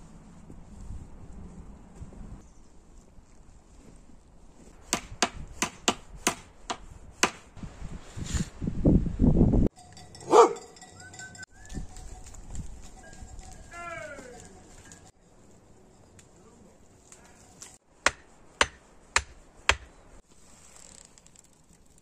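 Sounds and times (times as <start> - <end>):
sharp knocks: 18.0 - 19.9.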